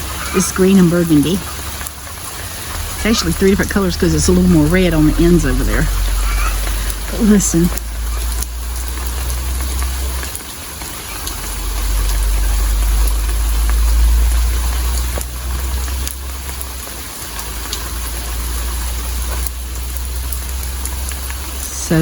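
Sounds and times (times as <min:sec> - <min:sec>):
steady rain falling: 0:00.0 - 0:22.0
water drips tapping: 0:00.0 - 0:22.0
low rumble: 0:01.0 - 0:10.4, 0:11.4 - 0:16.8.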